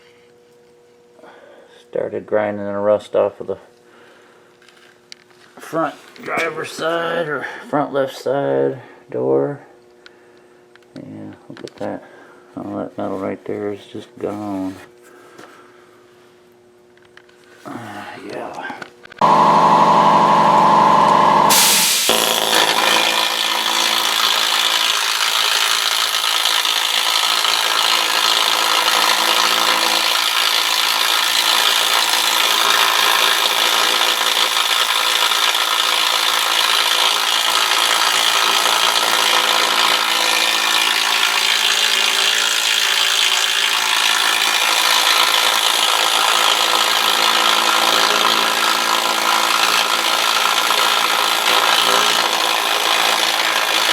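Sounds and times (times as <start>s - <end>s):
power grinder grinding metal: 19.2s - 53.9s.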